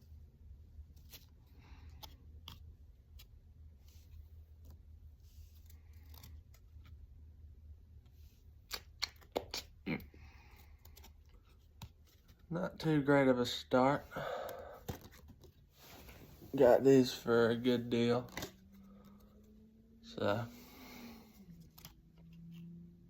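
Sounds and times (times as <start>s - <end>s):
low steady hum: 0.0s - 23.0s
cards and wrapper rustling: 0.9s - 7.1s, 14.1s - 19.6s, 20.5s - 22.7s
sharp snaps: 8.6s - 9.8s.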